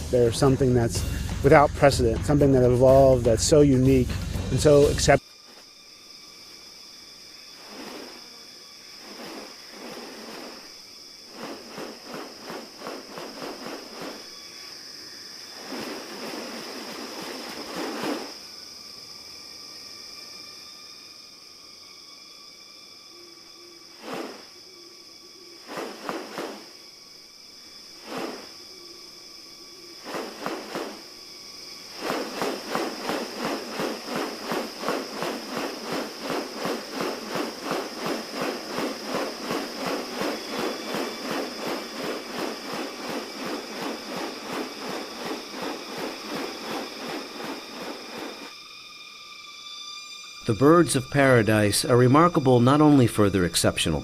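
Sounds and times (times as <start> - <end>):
high insect drones: 0.0 - 54.0
rapid pulsing animal call: 31.8 - 48.5.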